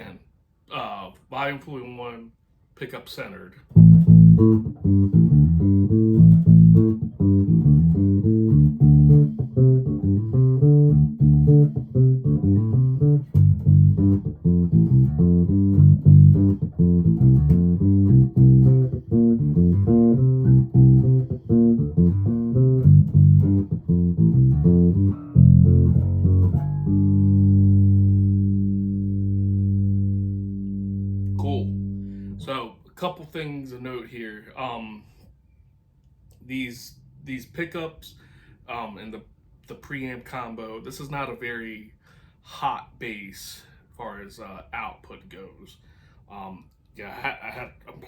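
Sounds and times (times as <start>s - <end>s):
electric bass run of notes: 3.8s - 32.5s.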